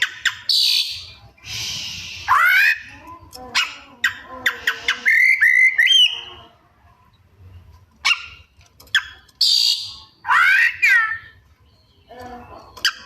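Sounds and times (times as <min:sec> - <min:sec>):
songbird chirps and whistles: 0:00.0 - 0:02.8, 0:04.5 - 0:06.3, 0:09.0 - 0:12.1.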